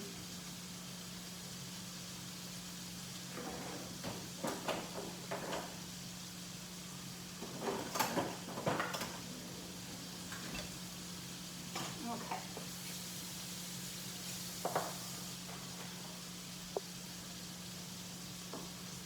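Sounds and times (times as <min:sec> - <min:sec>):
knocks and scrapes of cookware: 0:03.3 - 0:05.7, 0:07.4 - 0:09.2, 0:14.6 - 0:16.1.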